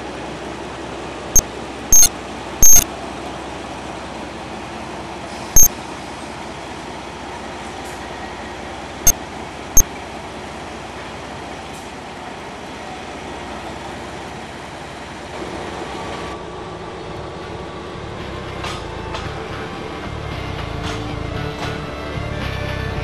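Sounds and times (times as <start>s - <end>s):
train running: 0.0s - 23.0s
sharp clicks: 2.0s - 2.8s.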